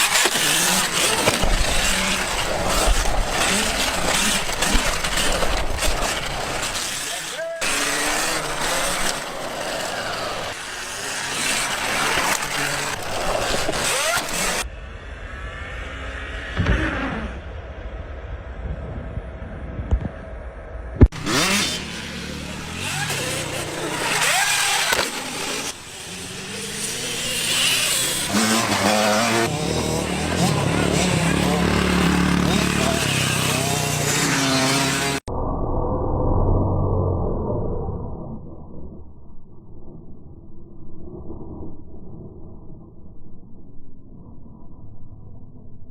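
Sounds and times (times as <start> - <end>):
wind rush on microphone: 15.0 - 21.1
motorcycle engine running: 21.0 - 35.2.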